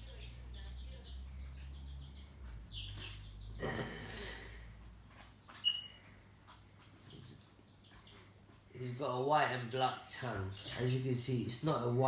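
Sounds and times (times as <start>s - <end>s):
high bird chirps: 5.4s - 8.2s.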